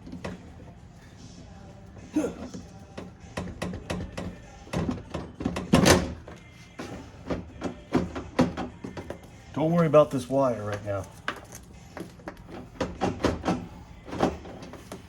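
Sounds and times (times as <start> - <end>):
plastic and metal rattles: 2.4 - 9.3, 10.6 - 15.0.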